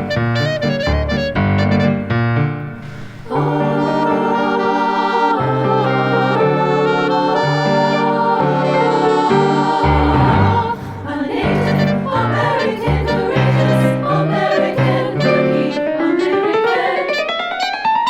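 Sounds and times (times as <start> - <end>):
clarinet: 0.0 - 10.8, 11.4 - 18.0
piano accompaniment: 0.0 - 18.0
treble choir singing: 2.7 - 17.8.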